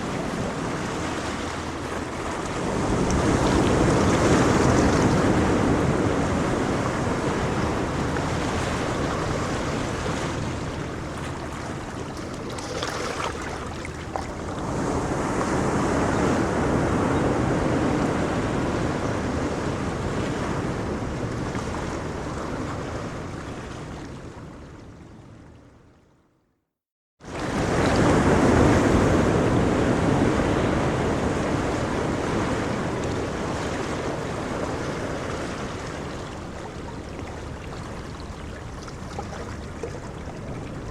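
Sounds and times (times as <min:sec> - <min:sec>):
ocean waves breaking on shore: 0:00.0 - 0:25.4, 0:27.2 - 0:40.9
wind on microphone: 0:00.0 - 0:25.4, 0:27.3 - 0:40.9.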